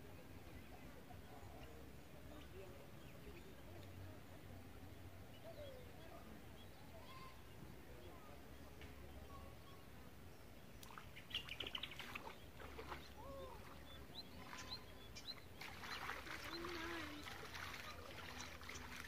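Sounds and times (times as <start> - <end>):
birds chirping and calling: 11.0 - 19.0.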